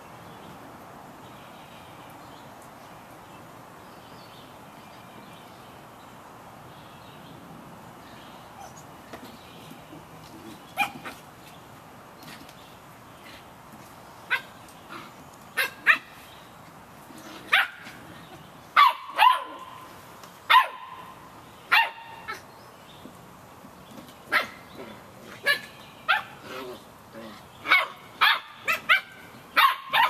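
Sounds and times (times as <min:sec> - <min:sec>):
puppies yapping: 0:10.7 - 0:11.2, 0:14.3 - 0:16.2, 0:18.8 - 0:19.9, 0:24.3 - 0:26.4, 0:27.6 - 0:30.0.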